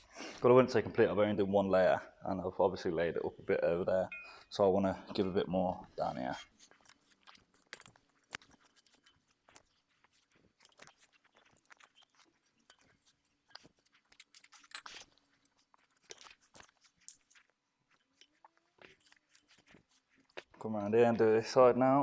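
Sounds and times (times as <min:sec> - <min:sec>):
woven wrap crackling and scraping: 0:06.0 - 0:20.6.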